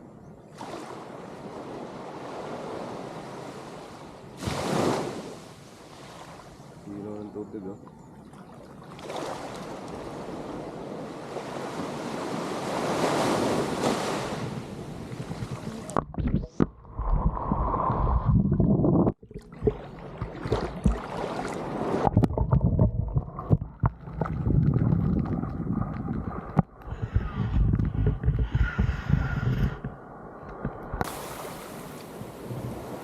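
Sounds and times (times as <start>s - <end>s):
sea surf washing onto shore: 9.4s - 16.0s, 30.9s - 33.0s
low rumbling: 22.0s - 33.0s.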